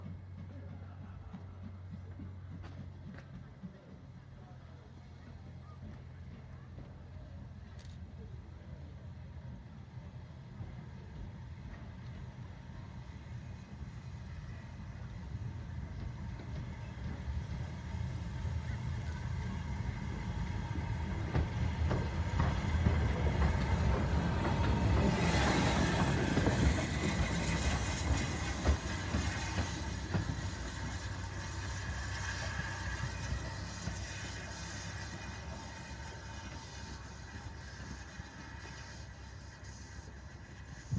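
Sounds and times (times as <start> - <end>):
steam locomotive rumbling past: 0.0 - 40.9
wheels clicking on rails: 15.0 - 40.9.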